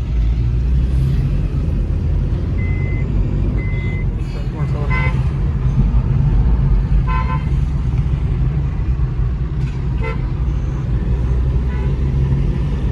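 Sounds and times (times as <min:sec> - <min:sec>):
car engine rumbling: 0:00.0 - 0:12.9
car horn beeps: 0:04.8 - 0:05.2.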